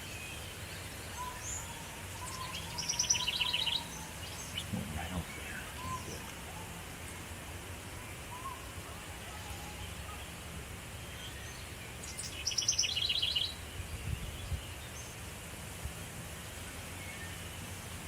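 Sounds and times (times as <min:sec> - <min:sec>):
songbird trilling: 0:00.1 - 0:07.2, 0:11.1 - 0:13.6
wind rumble on microphone: 0:13.7 - 0:14.9.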